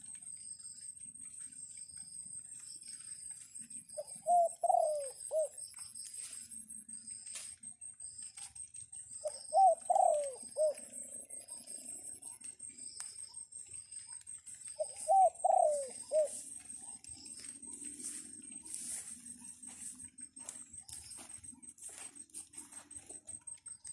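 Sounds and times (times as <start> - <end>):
steady high-pitched whine: 0.0 - 23.9
dove cooing: 3.8 - 5.7, 9.2 - 13.0, 13.8 - 20.5
scattered clicks: 6.9 - 23.9.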